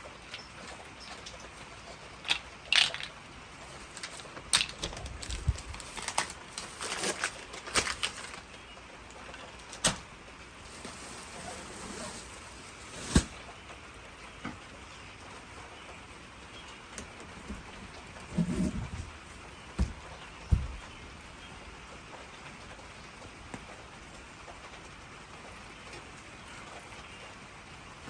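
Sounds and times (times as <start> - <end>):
clicks and knocks of handling: 0.2 - 8.5
rustling: 0.2 - 13.6, 17.0 - 21.0.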